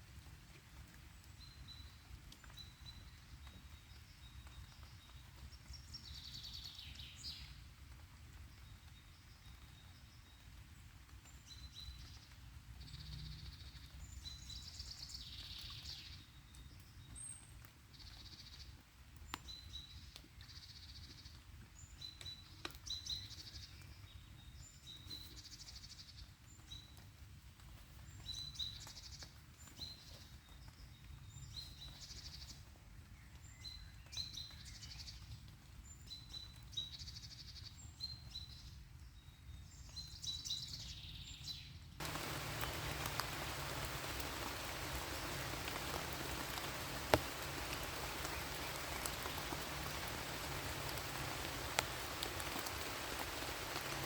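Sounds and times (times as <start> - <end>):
songbirds chirping: 42.0 - 54.0.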